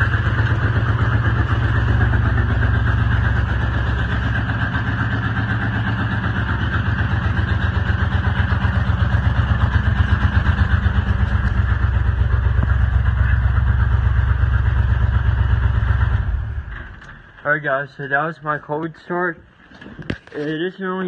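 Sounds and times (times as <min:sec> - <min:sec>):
truck engine idling: 0:00.0 - 0:17.7.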